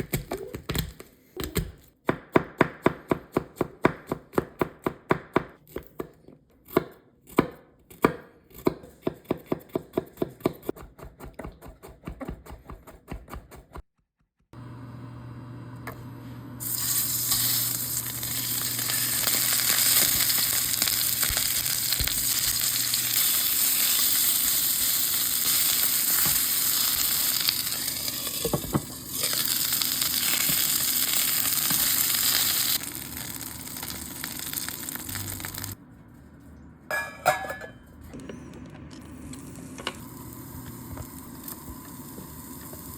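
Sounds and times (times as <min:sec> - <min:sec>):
knife chopping on cutting board: 0:02.1 - 0:13.8
food sizzling in frying pan: 0:16.6 - 0:35.8, 0:40.0 - 0:42.9.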